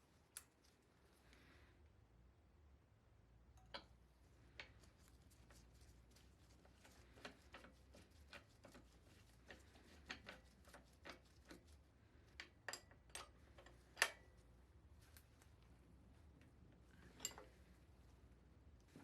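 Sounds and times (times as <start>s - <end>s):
tools and metal parts clicking: 12.7s - 14.3s.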